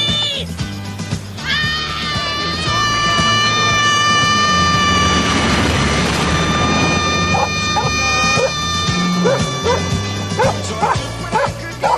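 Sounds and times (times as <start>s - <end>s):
sustained musical tones: 1.3s - 11.9s
low hum: 1.4s - 11.8s
dog barking and yipping: 7.3s - 11.9s.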